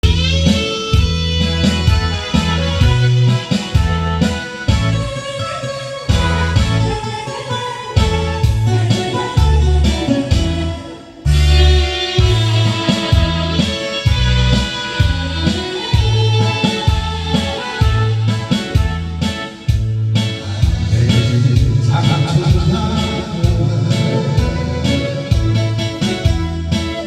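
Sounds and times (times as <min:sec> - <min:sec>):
karaoke backing track: 0:00.0 - 0:27.0.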